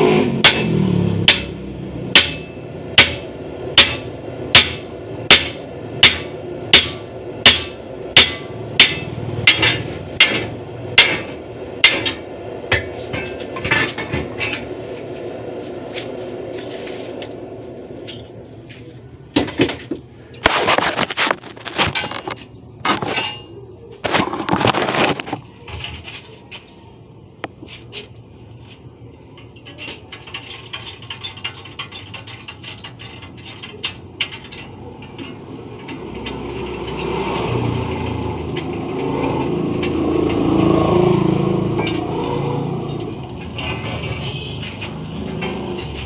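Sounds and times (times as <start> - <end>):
hammer striking metal: 0.2 - 14.7
rough scraping: 12.8 - 18.9, 20.3 - 26.7.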